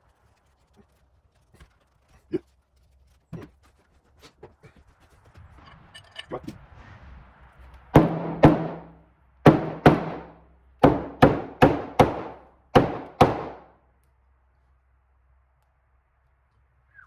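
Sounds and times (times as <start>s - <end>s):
hammer striking metal: 8.0s - 13.7s.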